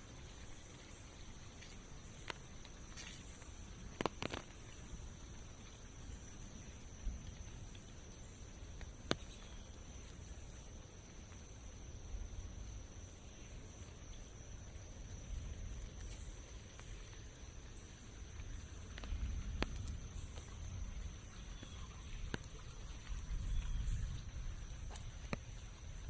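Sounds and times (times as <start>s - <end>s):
light rain patter: 0.0s - 26.0s.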